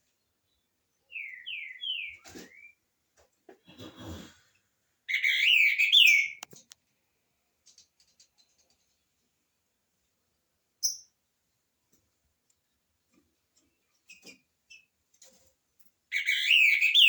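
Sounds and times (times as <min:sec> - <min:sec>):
bird chirps: 0:00.1 - 0:02.8, 0:05.1 - 0:06.5, 0:10.8 - 0:11.2, 0:16.1 - 0:17.0
bird whistled song: 0:01.1 - 0:02.8, 0:05.1 - 0:06.4, 0:16.1 - 0:17.0.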